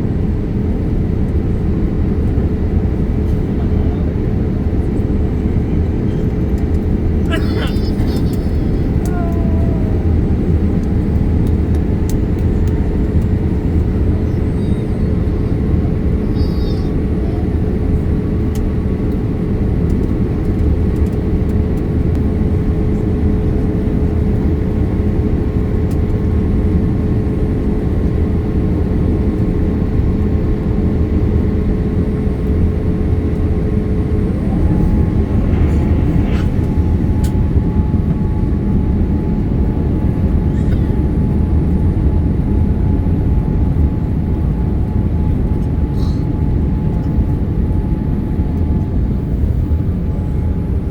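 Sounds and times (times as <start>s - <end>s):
engine and airflow rush: 0.0s - 50.9s
steady whine: 32.1s - 39.6s.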